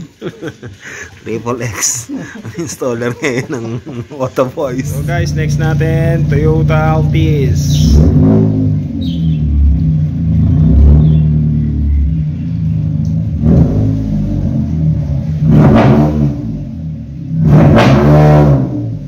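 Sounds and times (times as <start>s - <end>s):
car engine running and revving: 4.8s - 19.0s.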